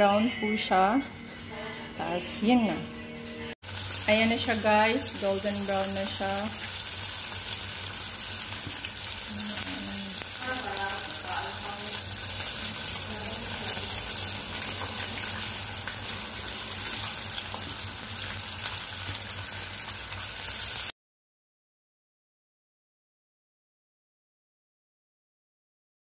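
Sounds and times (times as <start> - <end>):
chicken frying in hot oil: 3.6 - 21.0.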